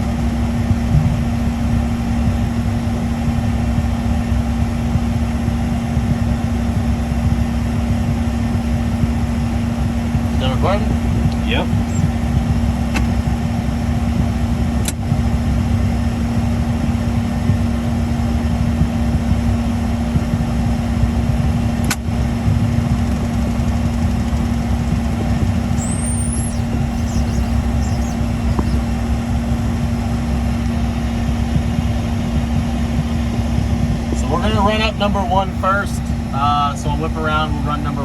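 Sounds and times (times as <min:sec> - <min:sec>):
jet engines idling: 0:00.0 - 0:13.4, 0:19.4 - 0:33.8.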